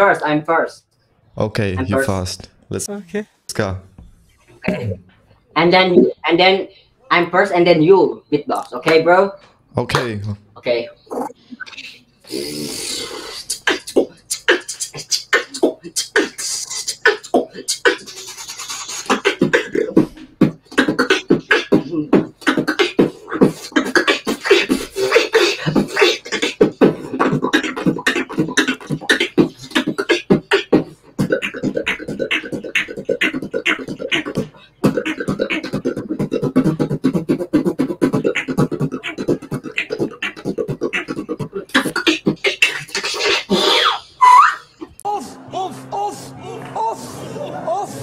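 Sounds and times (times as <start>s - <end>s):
person beatboxing: 11.1s - 44.0s.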